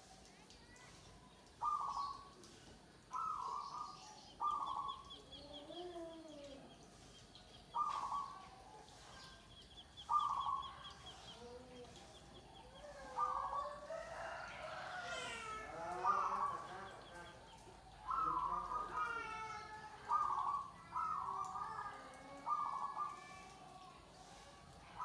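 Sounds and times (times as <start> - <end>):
doves cooing: 12.6 - 15.0, 15.9 - 19.3, 20.0 - 23.2.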